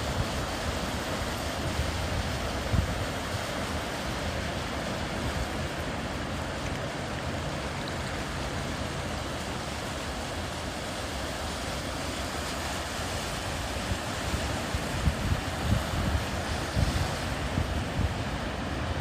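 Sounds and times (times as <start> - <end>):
wind buffeting microphone: 0.0 - 6.0, 13.2 - 19.0
sea waves washing onto beach: 0.0 - 19.0.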